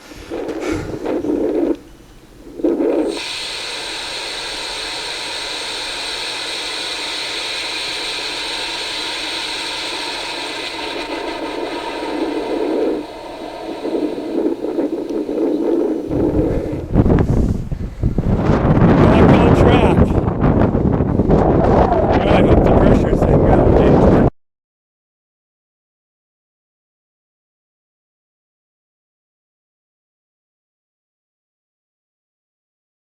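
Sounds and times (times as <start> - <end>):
rocket motor rushing hiss: 2.5 - 17.6.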